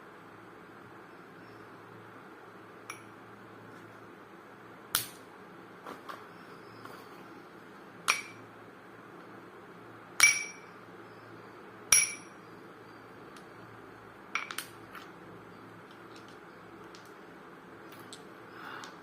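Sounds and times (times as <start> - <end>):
hard balls clinking: 10.2 - 10.8, 11.9 - 12.4, 14.4 - 19.0.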